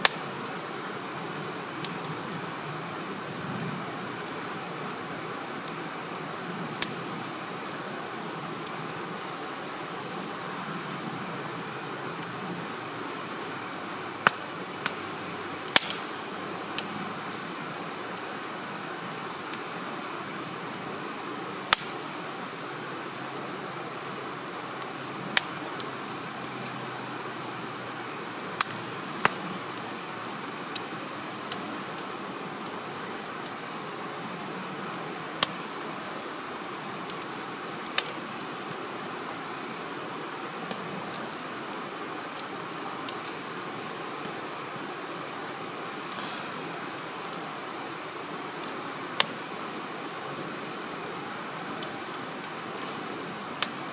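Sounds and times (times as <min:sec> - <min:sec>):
wood fire crackling and popping: 0:00.0 - 0:53.9.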